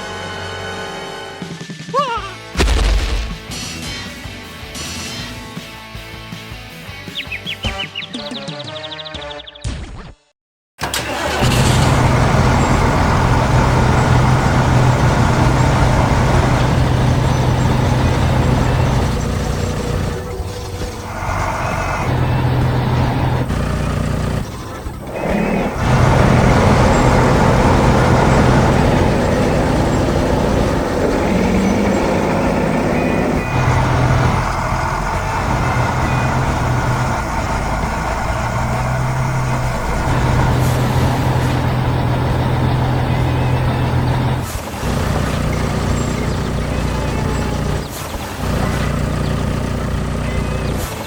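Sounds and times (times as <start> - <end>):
heavy diesel engine drone: 10.8 - 51.0
noisy rumble: 10.9 - 50.9.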